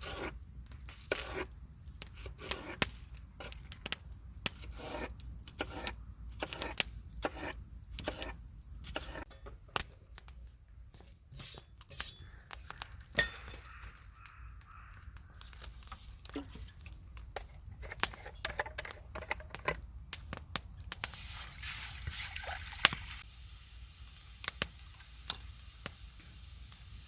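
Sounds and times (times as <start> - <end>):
utensils and dishes clinking: 13.1 - 13.7.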